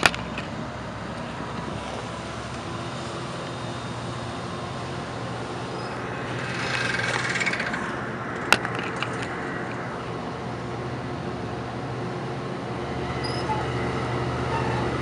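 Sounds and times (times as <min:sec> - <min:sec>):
train rumbling: 0:00.0 - 0:15.0
wheels hissing on rails: 0:00.0 - 0:15.0
sharp clicks: 0:06.2 - 0:09.4.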